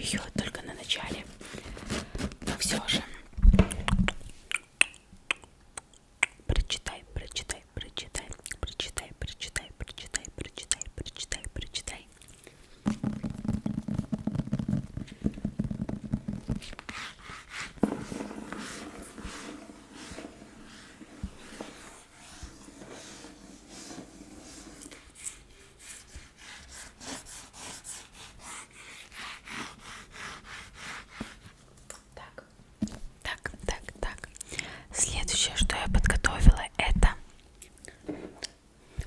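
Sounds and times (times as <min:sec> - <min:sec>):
fingers tapping and scratching: 0:12.9 - 0:17.1.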